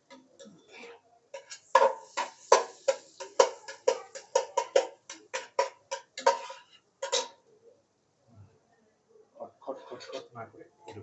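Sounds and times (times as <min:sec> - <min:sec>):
metal utensil clanking on pan: 0:01.4 - 0:07.4.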